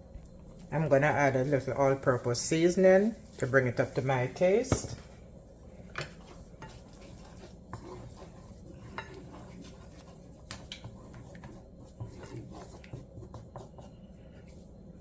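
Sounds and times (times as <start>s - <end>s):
utensil stirring curry in pot: 5.2s - 15.0s.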